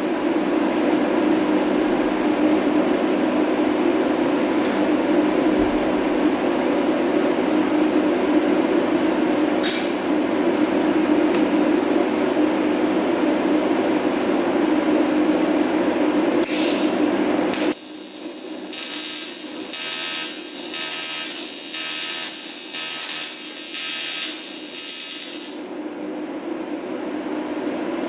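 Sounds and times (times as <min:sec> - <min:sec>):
welding arc hissing crackle: 0:16.4 - 0:25.7.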